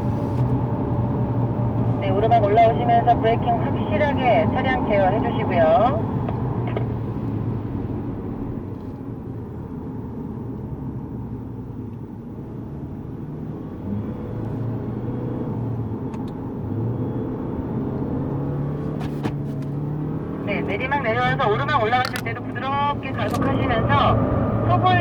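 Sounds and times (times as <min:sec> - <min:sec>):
car engine accelerating: 0:13.0 - 0:25.0.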